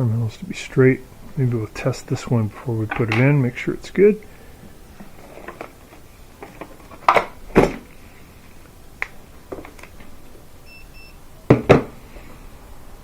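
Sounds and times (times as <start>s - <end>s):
handling knocks and clicks: 2.8s - 3.4s, 5.0s - 7.9s
multimeter beeps: 10.6s - 11.2s.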